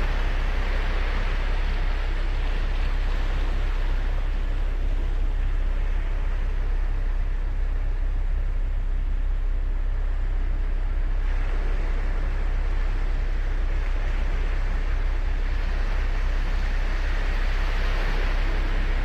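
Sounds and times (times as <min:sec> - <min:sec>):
waves breaking on beach: 0:00.0 - 0:04.1, 0:15.4 - 0:19.0
low rumble: 0:00.0 - 0:19.0.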